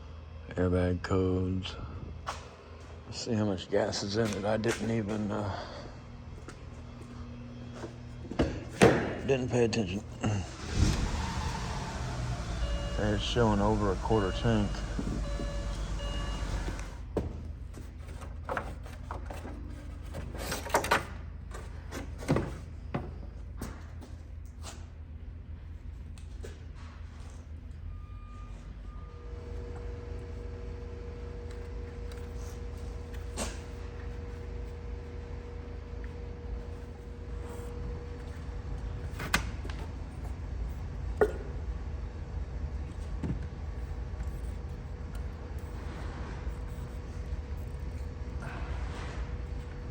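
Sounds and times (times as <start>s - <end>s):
low steady hum: 0.0s - 20.6s.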